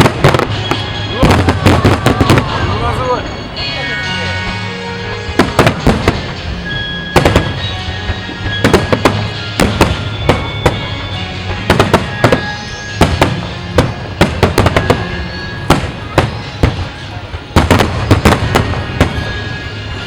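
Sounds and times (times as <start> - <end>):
fireworks booming and cracking: 0.0 - 3.6, 5.0 - 20.0.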